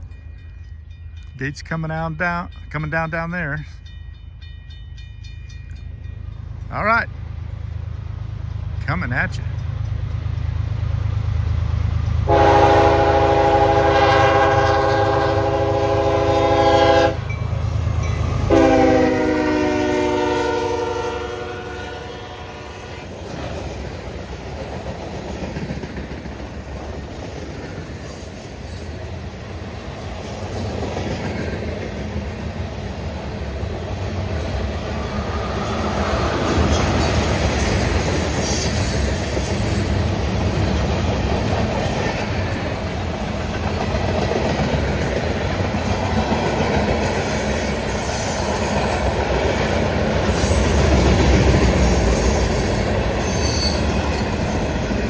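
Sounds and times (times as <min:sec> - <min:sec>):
freight train wheels clattering: 0:23.0 - 0:55.0
wheel squeal: 0:51.8 - 0:55.0.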